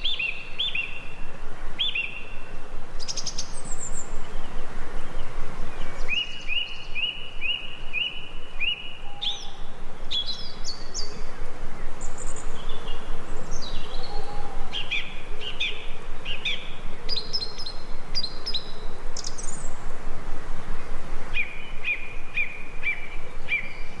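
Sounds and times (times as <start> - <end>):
background hiss: 0.0 - 24.0
birds whistling: 5.9 - 11.4, 12.0 - 19.8.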